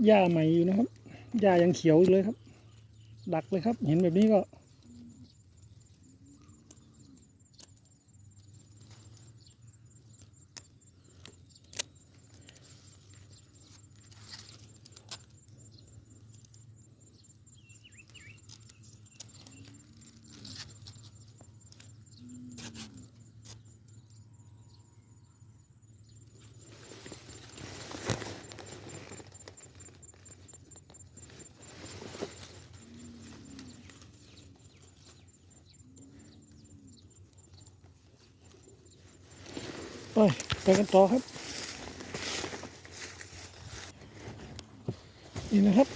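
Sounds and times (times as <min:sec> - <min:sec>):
high pulsing insect trill: 0:00.0 - 0:44.2
rustling in grass: 0:26.3 - 0:45.9.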